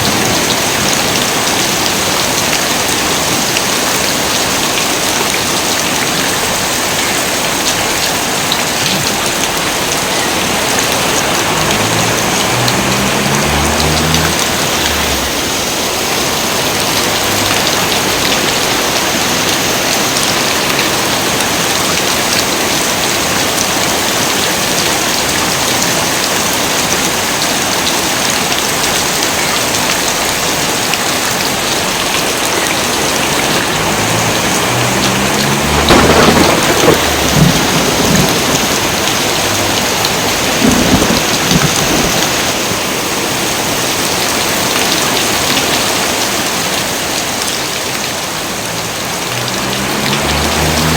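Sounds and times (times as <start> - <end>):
heavy rain pouring: 0.0 - 50.9
thunder rumbling: 32.8 - 42.7.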